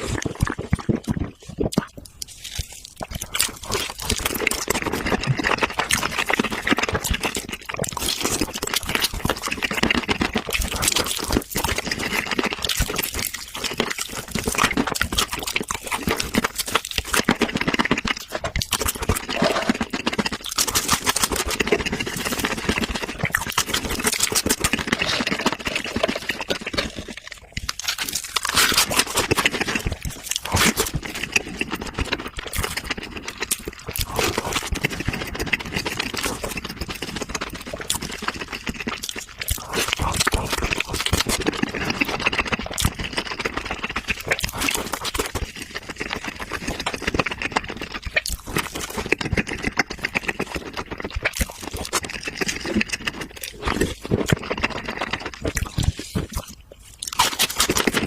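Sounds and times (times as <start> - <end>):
person chewing: 0.0 - 58.0.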